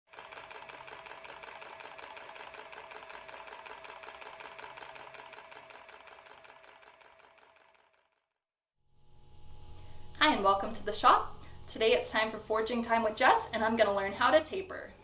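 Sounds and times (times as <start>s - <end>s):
steady machine hum: 8.9s - 15.0s.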